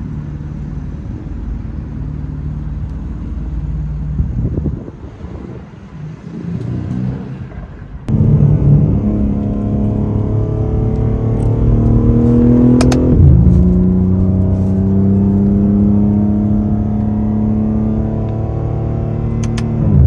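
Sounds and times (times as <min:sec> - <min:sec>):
car engine revving in cabin: 0:06.1 - 0:20.0.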